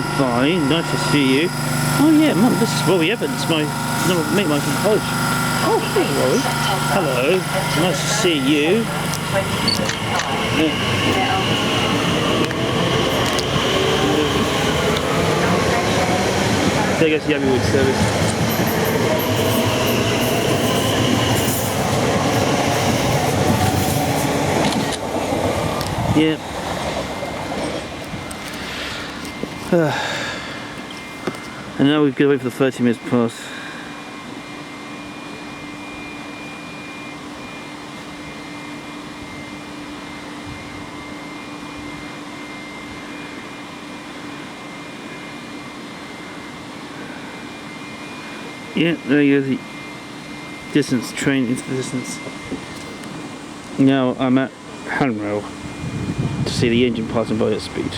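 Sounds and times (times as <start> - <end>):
high two-note whine: 0.0 - 16.1
faint high whine: 0.0 - 22.9, 27.2 - 57.9
electric train pulling out: 0.0 - 57.9.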